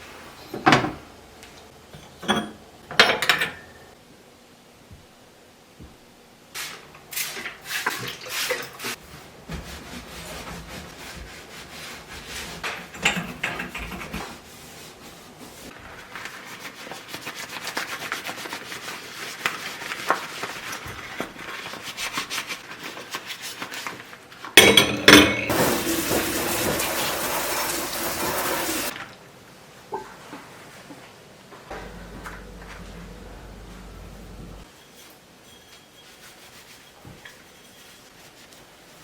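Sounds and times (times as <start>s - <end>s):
scrubbing kitchen surfaces: 6.6s - 24.0s, 25.5s - 28.9s, 35.8s - 39.0s
kitchen tap running: 25.5s - 28.9s.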